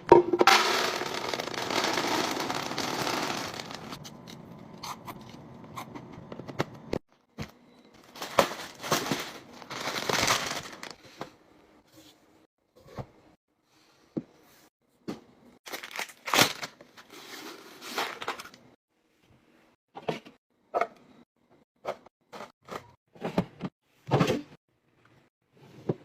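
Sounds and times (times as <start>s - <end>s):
packaging crinkling and rustling: 0.9s - 4.0s, 8.0s - 11.0s, 15.7s - 16.8s.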